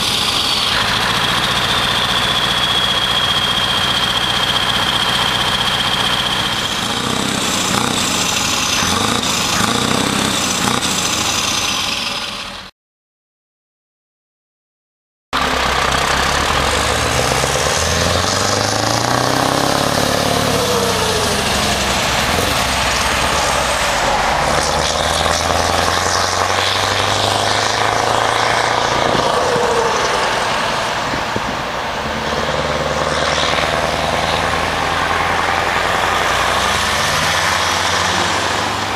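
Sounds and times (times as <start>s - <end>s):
truck engine revving: 0.0s - 12.7s, 15.4s - 38.9s.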